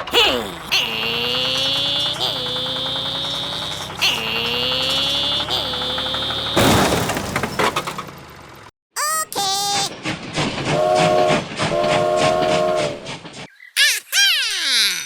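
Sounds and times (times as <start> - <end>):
train wheels clickety-clack: 10.0 - 13.5
multi-tone train horn blasts: 10.7 - 13.0.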